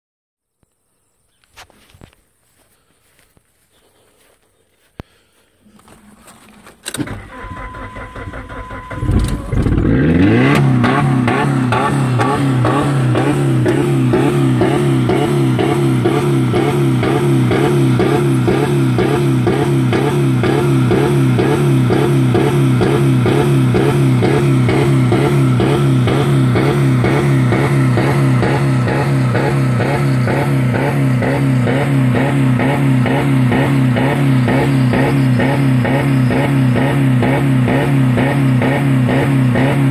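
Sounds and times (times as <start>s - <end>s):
car engine revving on rev limiter: 9.1s - 39.9s.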